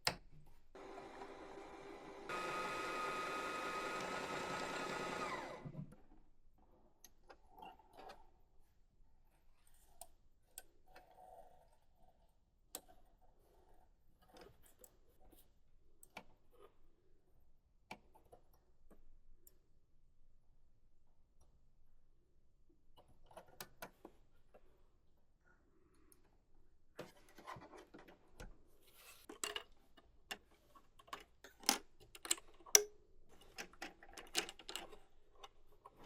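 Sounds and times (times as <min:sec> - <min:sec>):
sewing machine motor running: 0:00.8 - 0:05.8.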